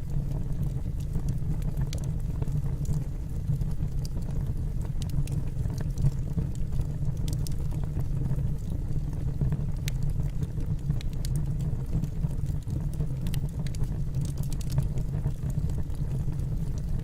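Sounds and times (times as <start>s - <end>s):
crackles and pops of burning logs: 0.0s - 17.0s
rumble of fire flames: 0.0s - 17.0s.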